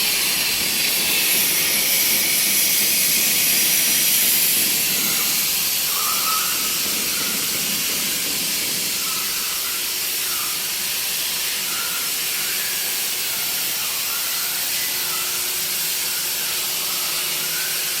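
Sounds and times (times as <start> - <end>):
plasma cutter torch hissing: 0.0 - 18.0.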